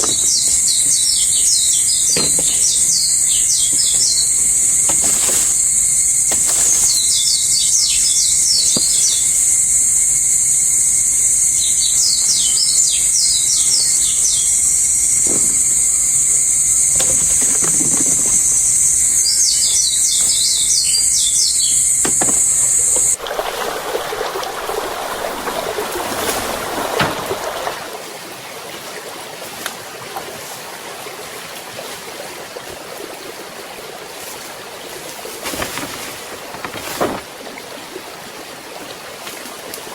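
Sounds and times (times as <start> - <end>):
bird chirping trills: 0.0 - 9.5, 11.6 - 23.2.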